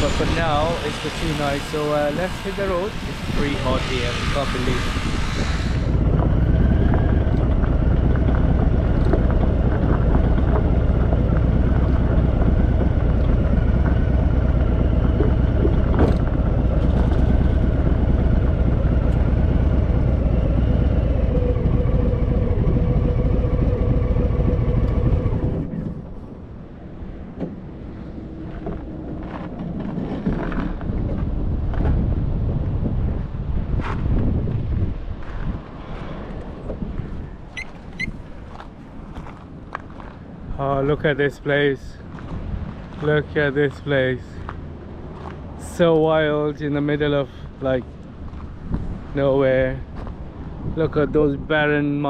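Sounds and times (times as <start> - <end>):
motorcycle engine running: 0.0 - 26.2
wind noise: 0.0 - 52.0.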